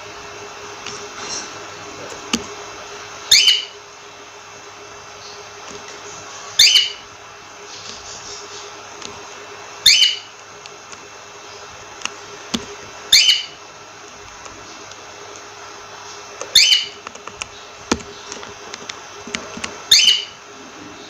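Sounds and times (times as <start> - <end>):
background hum: 0.0 - 21.0
cockatiel calling: 3.2 - 3.8, 6.5 - 7.1, 9.8 - 10.4, 13.1 - 13.6, 16.4 - 17.0, 19.8 - 20.4.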